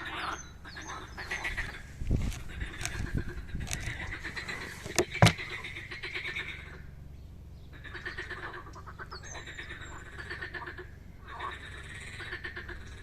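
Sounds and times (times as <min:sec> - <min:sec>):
frogs croaking in chorus: 0:00.0 - 0:13.0
sharp knocks: 0:04.8 - 0:05.4.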